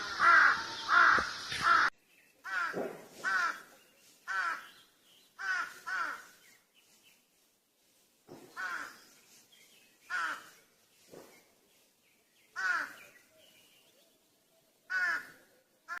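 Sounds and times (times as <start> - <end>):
crow cawing: 0.0 - 3.7, 4.3 - 4.7, 5.4 - 6.4, 8.6 - 9.0, 10.1 - 10.6, 12.6 - 13.0, 14.9 - 16.0.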